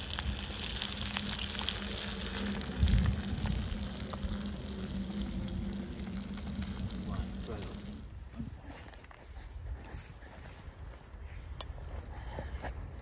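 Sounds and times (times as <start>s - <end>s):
fish frying in hot oil: 0.0s - 8.1s.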